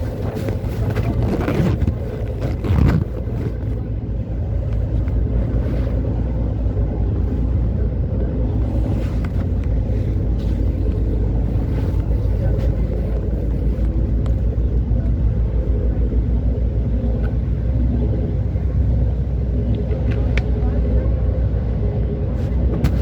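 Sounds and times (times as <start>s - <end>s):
boat engine droning: 0.0s - 23.0s
wind gusting over microphone: 0.0s - 23.0s.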